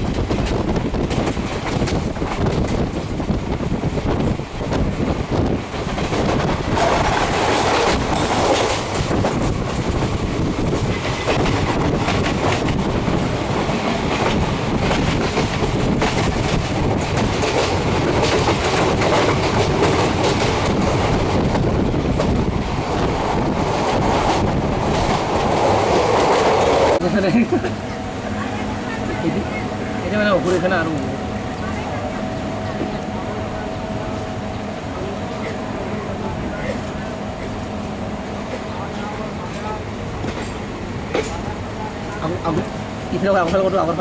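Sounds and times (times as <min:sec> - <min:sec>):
train wheels clicking on rail joints: 0:00.0 - 0:27.0, 0:38.4 - 0:44.0
train rumble: 0:00.0 - 0:44.0.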